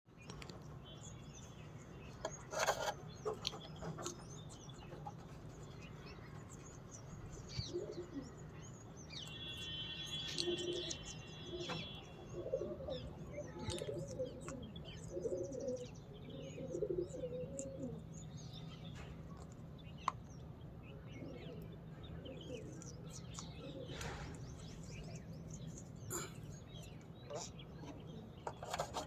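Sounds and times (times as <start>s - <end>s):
birds cooing: 2.2s - 8.8s, 9.4s - 20.0s, 20.9s - 29.0s.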